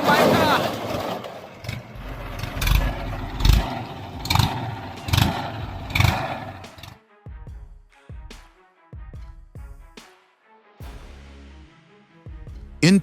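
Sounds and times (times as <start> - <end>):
heavy machinery running: 0.0 - 6.9
music: 6.7 - 13.0.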